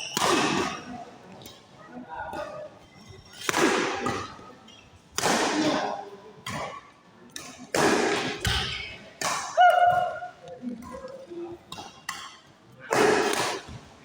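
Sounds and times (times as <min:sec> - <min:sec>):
shoe squeal: 0:00.0 - 0:00.3
racket hitting shuttlecock: 0:00.0 - 0:01.0, 0:03.4 - 0:04.4, 0:05.2 - 0:06.7, 0:07.3 - 0:10.2, 0:11.8 - 0:13.8.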